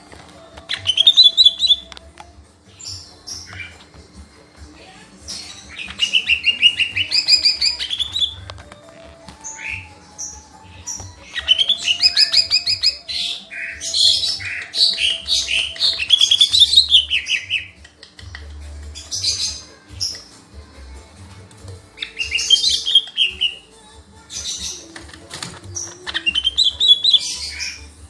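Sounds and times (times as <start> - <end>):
bird singing rapid trills: 0.7 - 1.9, 5.3 - 8.5, 9.4 - 20.4, 22.0 - 25.0, 25.6 - 28.0.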